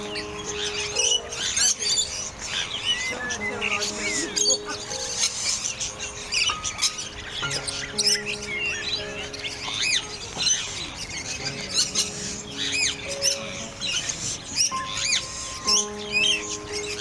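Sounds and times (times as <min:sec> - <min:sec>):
background music of held notes: 0:00.0 - 0:17.0
birds chirping and squawking: 0:00.0 - 0:17.0.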